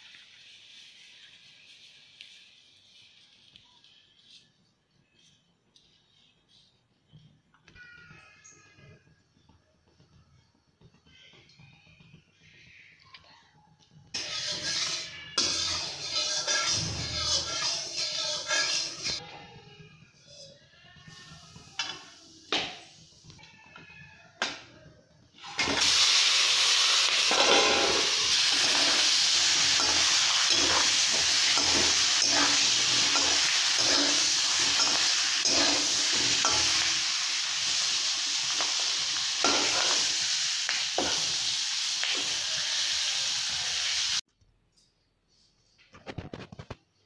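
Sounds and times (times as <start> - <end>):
chillies sizzling in hot oil: 0.0 - 5.2, 14.0 - 19.2, 25.3 - 44.2
spatula scraping a pan: 14.2 - 19.2, 25.5 - 43.1.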